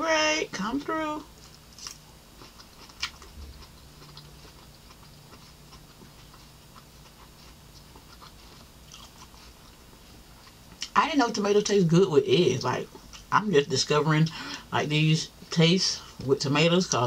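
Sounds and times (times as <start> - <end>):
chewing with mouth closed: 1.4 - 11.0.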